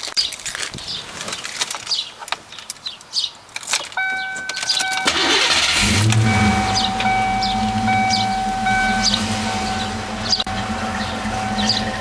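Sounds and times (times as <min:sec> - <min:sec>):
electronic warning tone: 0:04.0 - 0:12.0
car engine running: 0:04.1 - 0:12.0
starter motor cranking: 0:04.8 - 0:07.2.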